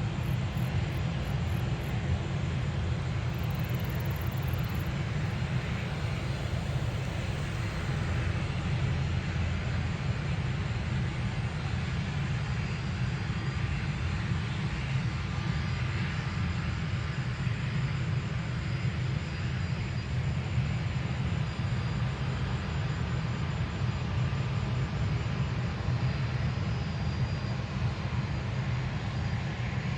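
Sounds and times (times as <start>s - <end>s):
jet engines rumbling: 0.0s - 17.4s.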